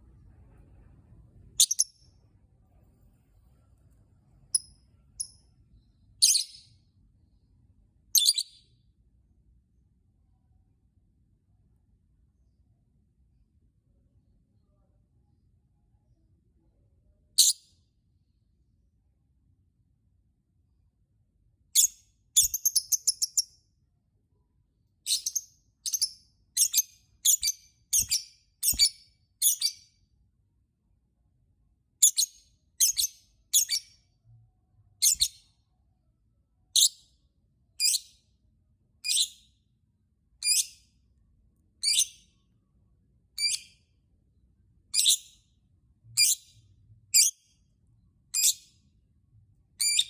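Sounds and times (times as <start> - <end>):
lovebird chirping and shrieking: 1.6 - 2.0, 6.2 - 6.7, 8.2 - 8.6, 21.8 - 23.5, 25.1 - 29.9, 32.0 - 34.0, 35.0 - 35.5, 37.8 - 38.1, 39.0 - 39.5, 40.4 - 40.8, 41.8 - 42.3, 43.4 - 43.8, 44.9 - 45.4, 46.2 - 46.6, 47.2 - 47.4, 48.3 - 48.7, 49.8 - 50.0.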